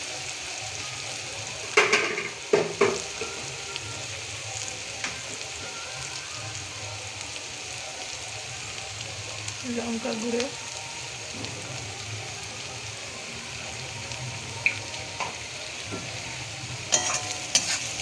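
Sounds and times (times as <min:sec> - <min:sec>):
masala sizzling in oil: 0:00.0 - 0:18.0
spoon knocking against pan: 0:01.8 - 0:03.3.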